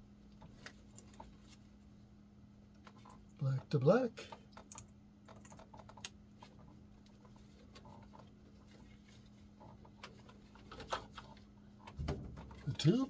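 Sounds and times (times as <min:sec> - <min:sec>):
clicks and rustles of wires: 0:04.4 - 0:13.0.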